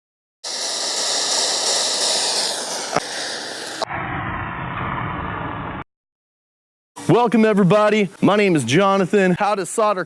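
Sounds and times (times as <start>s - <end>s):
gas torch flame hissing: 0.4s - 3.9s
sharp click: 2.6s - 3.9s.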